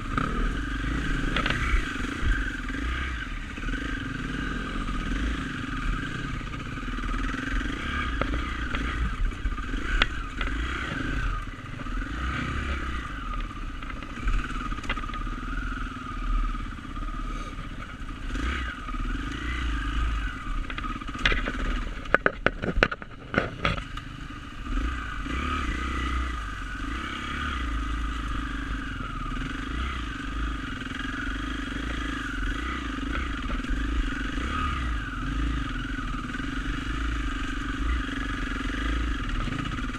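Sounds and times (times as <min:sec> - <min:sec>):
dirt bike engine running: 0:00.0 - 0:39.9
sharp knocks and clatter: 0:20.6 - 0:23.9.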